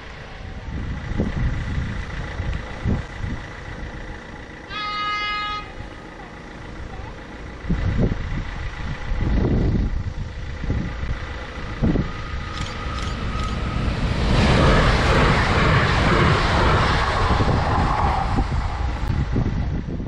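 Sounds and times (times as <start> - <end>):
train rushing past: 10.9 - 20.0.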